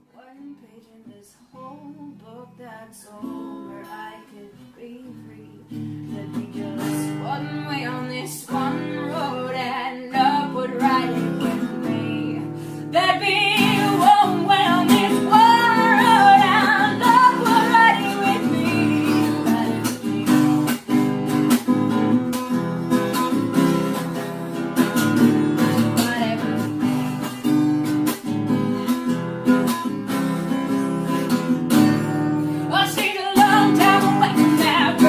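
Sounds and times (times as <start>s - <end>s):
person singing: 0.0s - 21.0s, 24.8s - 27.2s, 32.5s - 35.0s
strummed acoustic guitar: 0.0s - 35.0s.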